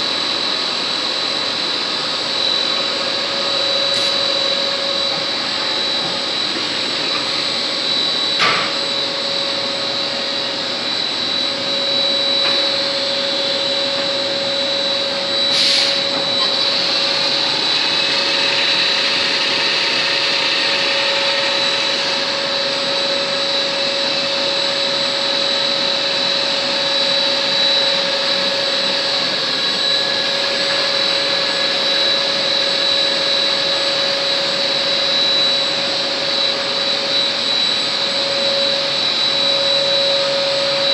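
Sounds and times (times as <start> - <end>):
lathe hum and whine: 0.0 - 40.9.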